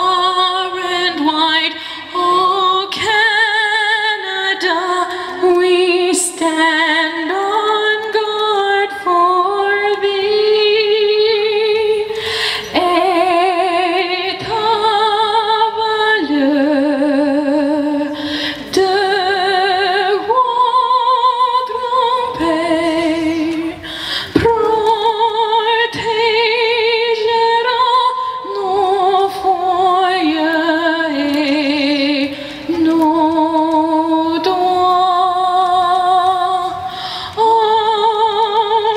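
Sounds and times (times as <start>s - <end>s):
woman singing with vibrato: 0.0s - 38.9s.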